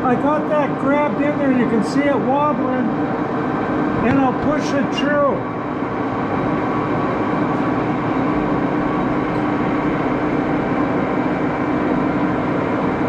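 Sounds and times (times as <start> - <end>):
lathe running: 0.0 - 13.0.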